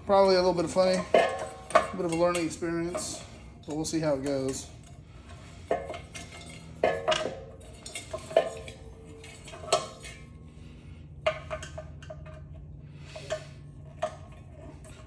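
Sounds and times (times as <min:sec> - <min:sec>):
metal parts clanking: 0:00.0 - 0:10.4.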